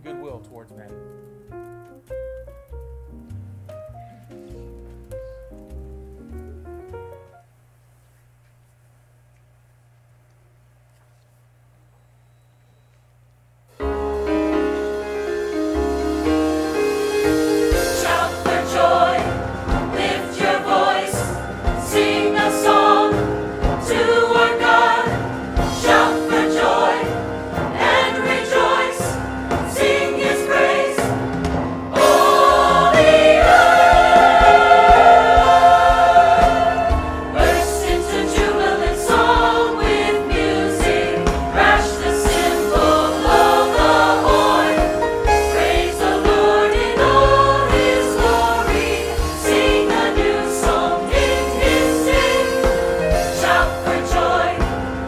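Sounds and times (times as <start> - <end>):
instrumental backing music: 0.0 - 7.5, 13.7 - 55.0
church choir singing: 13.8 - 55.0.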